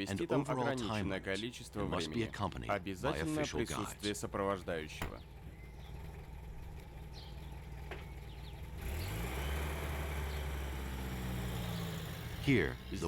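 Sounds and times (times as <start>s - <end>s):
vehicle engine accelerating: 5.3s - 13.0s.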